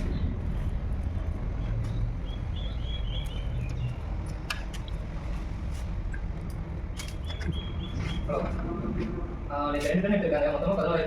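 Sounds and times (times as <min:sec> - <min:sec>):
steady low rumble: 0:00.0 - 0:11.0
bird chirping: 0:01.6 - 0:04.1, 0:07.1 - 0:08.3.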